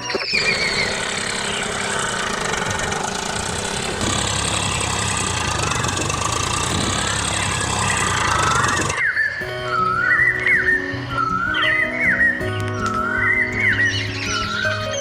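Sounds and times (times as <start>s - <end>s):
motor humming: 0.0s - 9.0s.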